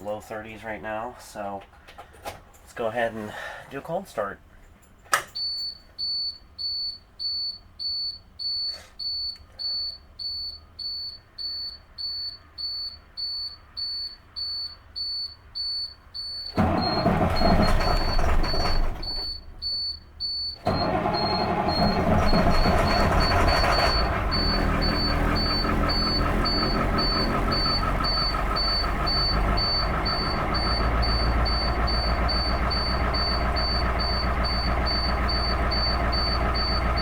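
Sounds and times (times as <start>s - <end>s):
diesel engine cranking: 16.5s - 19.7s, 20.6s - 37.0s
dash warning buzzer beeping: 20.2s - 37.0s.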